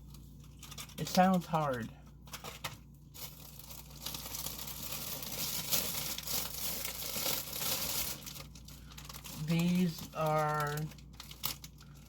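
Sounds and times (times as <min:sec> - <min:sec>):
plastic wrappers crinkling: 0:00.0 - 0:12.0.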